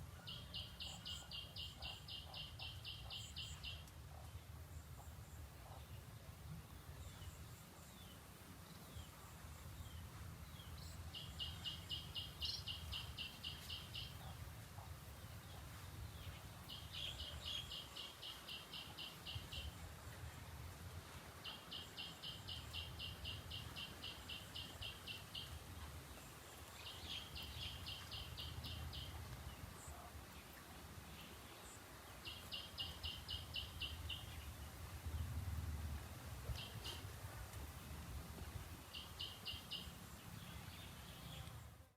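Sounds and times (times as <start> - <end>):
outdoor ambience rumble: 34.2 - 38.2.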